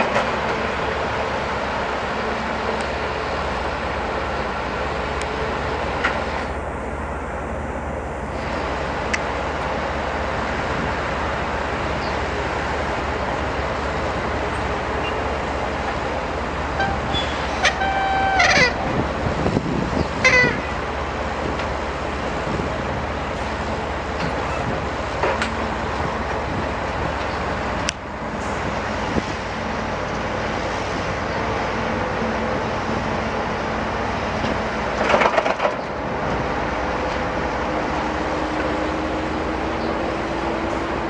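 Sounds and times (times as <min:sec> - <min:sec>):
diesel construction machinery running: 0:00.0 - 0:41.0.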